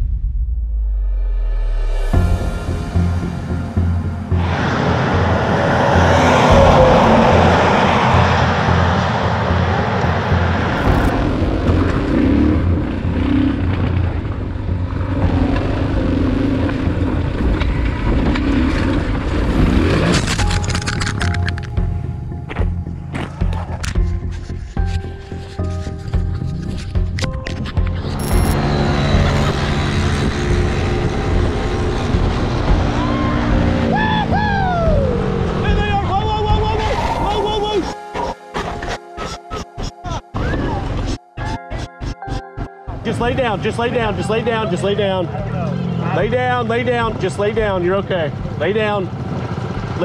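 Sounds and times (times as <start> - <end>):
rush of noise: 1.5 - 21.6, 28.0 - 37.4
wind rush: 4.3 - 13.2
motorcycle engine revving: 4.3 - 25.1, 27.8 - 36.6, 48.0 - 50.0.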